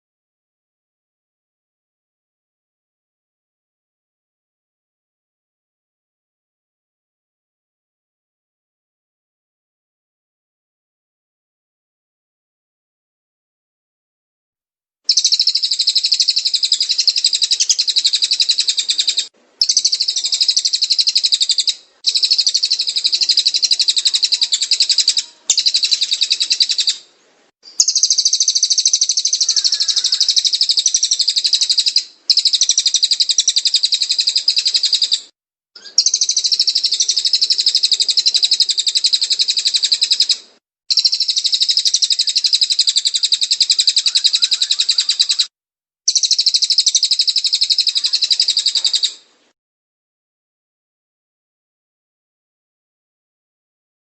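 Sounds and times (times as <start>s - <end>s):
bird chirping and trilling: 15.1s - 27.0s, 27.6s - 45.5s, 46.1s - 49.2s.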